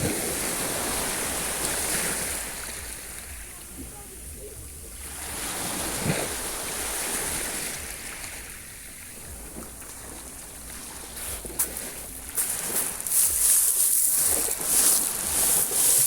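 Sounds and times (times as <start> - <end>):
sea waves washing on shore: 0.0 - 16.0.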